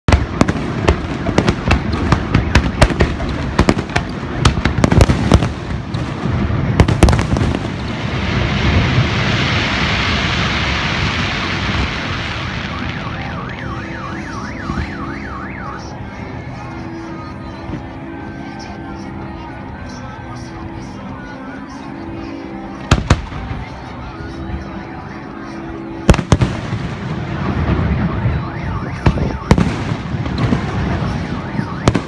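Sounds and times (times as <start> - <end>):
fireworks bursting with sharp bangs: 0.0 - 15.9, 22.8 - 23.9, 26.1 - 32.0.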